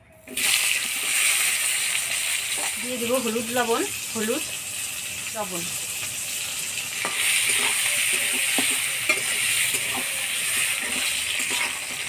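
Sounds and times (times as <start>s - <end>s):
food sizzling in hot oil: 0.3s - 12.0s
metal spatula scraping a pan: 6.9s - 12.0s.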